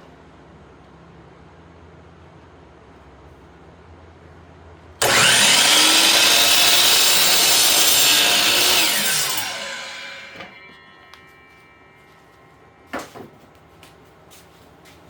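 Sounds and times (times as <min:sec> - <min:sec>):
miter saw cutting wood: 0:05.0 - 0:11.8
saw motor winding down: 0:05.0 - 0:11.9.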